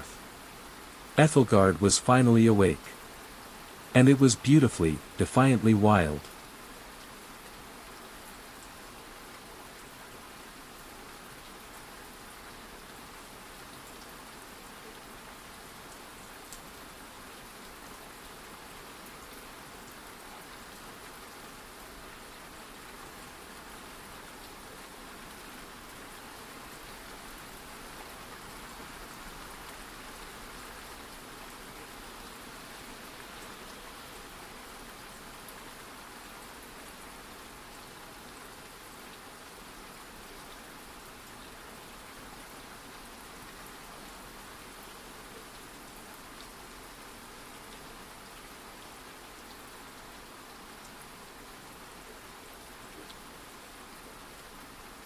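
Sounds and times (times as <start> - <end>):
rainfall hiss: 0.0 - 55.0.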